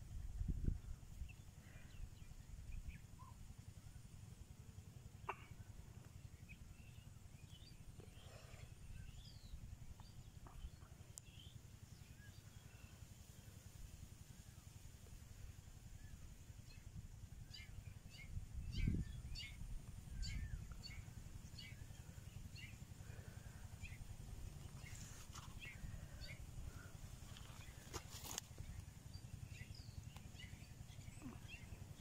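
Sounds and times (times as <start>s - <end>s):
small birds chirping: 5.2s - 13.8s, 16.0s - 32.0s
steady low rumble: 13.7s - 32.0s.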